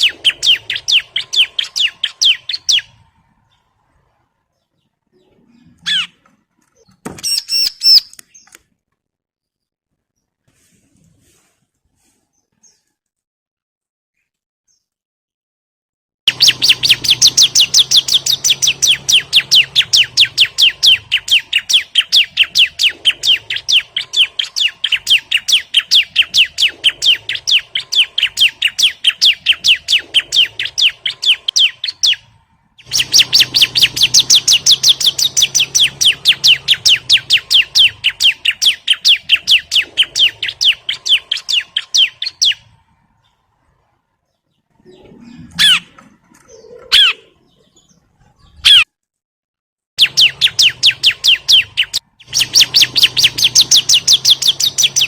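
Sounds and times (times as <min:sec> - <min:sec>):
bird chirping rapidly: 0:00.0 - 0:03.8, 0:04.6 - 0:06.2, 0:06.8 - 0:08.6, 0:16.3 - 0:43.4, 0:44.4 - 0:48.9, 0:50.0 - 0:55.0.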